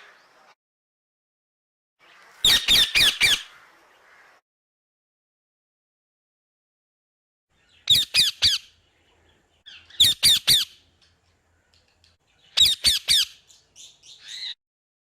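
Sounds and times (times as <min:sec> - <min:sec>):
parrot squawking: 0:02.4 - 0:03.5, 0:07.9 - 0:08.7, 0:09.7 - 0:10.8, 0:12.6 - 0:13.4.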